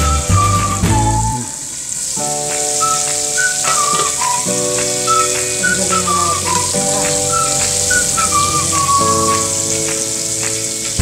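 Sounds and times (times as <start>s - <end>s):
chicken sizzling in oil: 0.0s - 11.0s
whistle-like melody over chords: 0.0s - 11.0s.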